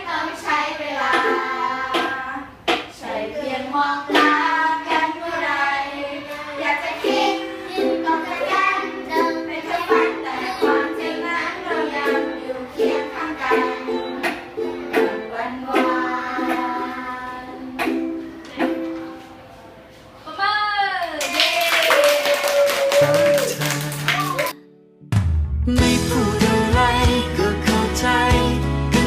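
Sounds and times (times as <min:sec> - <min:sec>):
children singing pop song: 0:00.0 - 0:19.3, 0:25.7 - 0:29.0
strummed ukulele: 0:01.0 - 0:02.2, 0:04.1 - 0:05.5, 0:06.9 - 0:19.2.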